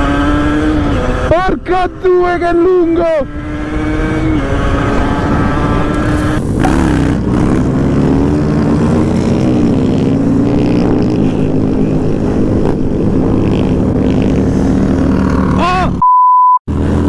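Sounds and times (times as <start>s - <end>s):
motorcycle engines revving: 0.0s - 2.1s, 2.8s - 16.0s.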